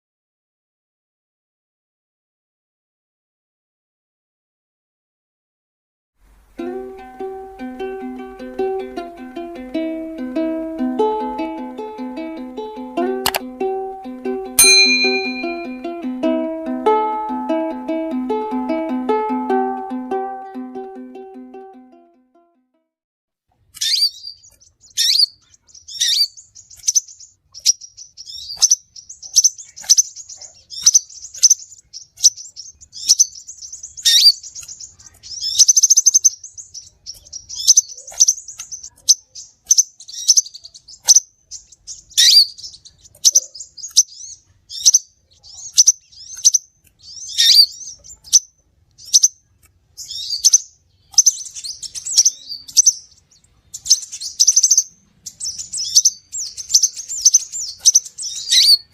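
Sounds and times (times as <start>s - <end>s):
sunbird chirping: 6.5s - 19.0s, 23.8s - 58.9s.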